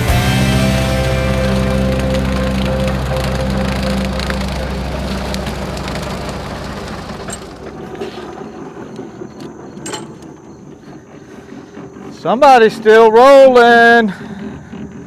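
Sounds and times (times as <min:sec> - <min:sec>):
tractor drone: 0:00.0 - 0:15.0
rotary cutter clattering: 0:00.8 - 0:11.1.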